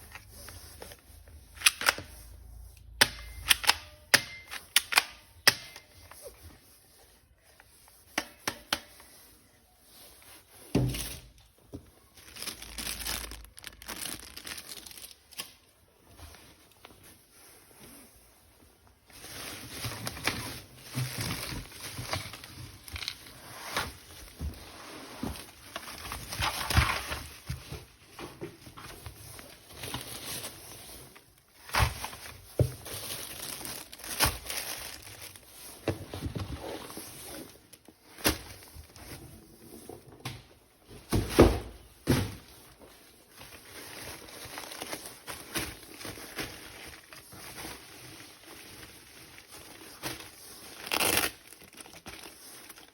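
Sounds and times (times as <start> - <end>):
plastic packaging crinkling and tearing: 9.9 - 16.9, 19.0 - 27.9, 28.8 - 39.2, 42.2 - 52.9.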